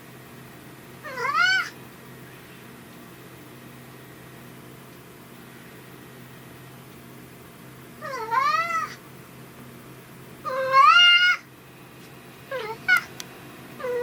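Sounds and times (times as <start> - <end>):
cat meowing: 1.0 - 1.8, 8.0 - 9.0, 10.4 - 11.5, 12.5 - 13.1.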